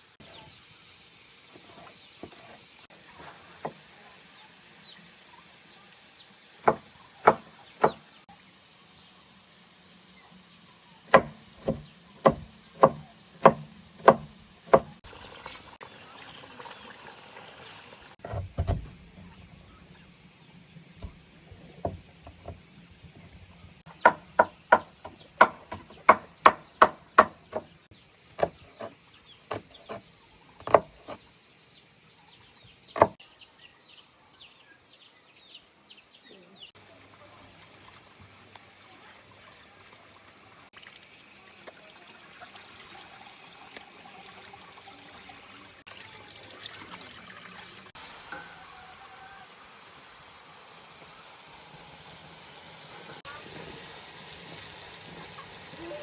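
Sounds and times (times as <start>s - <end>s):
birds chirping: 4.3s - 8.2s, 23.1s - 36.7s
blade chopping on wooden block: 6.7s - 8.0s, 11.1s - 15.0s, 24.0s - 27.7s, 28.4s - 28.9s, 29.5s - 30.0s, 30.6s - 31.2s, 33.0s - 33.2s.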